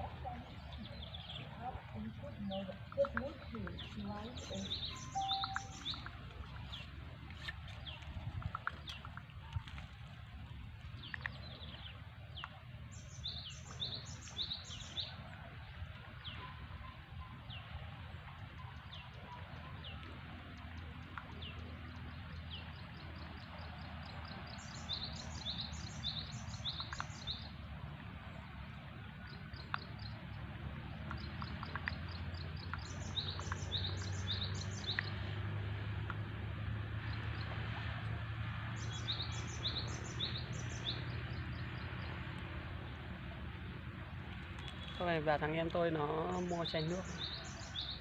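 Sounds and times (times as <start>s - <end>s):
small birds chirping: 0.0s - 9.9s, 10.9s - 15.2s, 18.4s - 27.6s, 28.3s - 36.3s, 36.9s - 43.7s, 44.4s - 48.0s
faint clicks: 26.6s - 27.3s, 31.0s - 34.2s.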